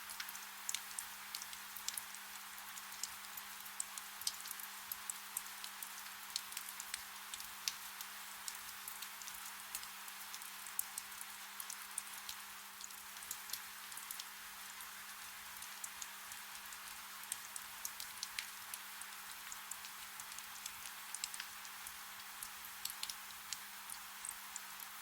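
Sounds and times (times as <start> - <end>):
soft rain hiss: 0.0 - 25.0
raindrop ticks: 0.1 - 2.1, 8.5 - 14.3, 15.6 - 24.6.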